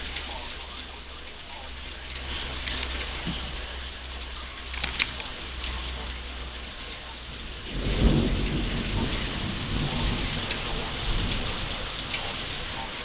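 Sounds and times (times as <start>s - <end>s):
heavy rain falling: 0.0s - 13.0s
thunder rumbling: 7.1s - 13.0s.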